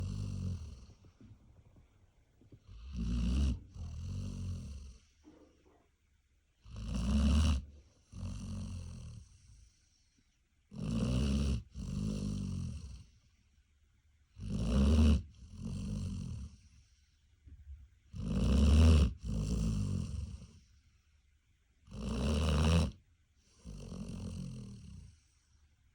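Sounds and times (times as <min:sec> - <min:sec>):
dog snoring: 0:00.0 - 0:01.6, 0:02.5 - 0:05.8, 0:06.6 - 0:10.0, 0:10.7 - 0:13.3, 0:14.3 - 0:17.0, 0:18.1 - 0:20.8, 0:21.8 - 0:25.4.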